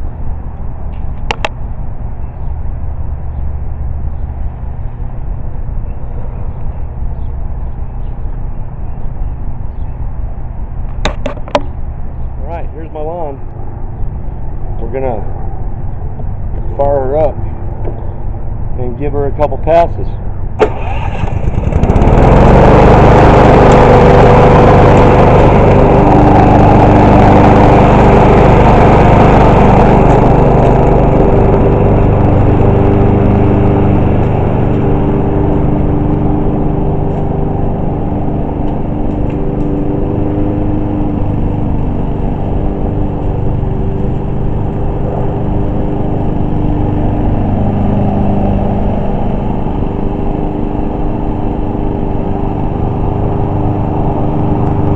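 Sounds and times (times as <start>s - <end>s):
lawn mower engine running: 20.6s - 54.9s.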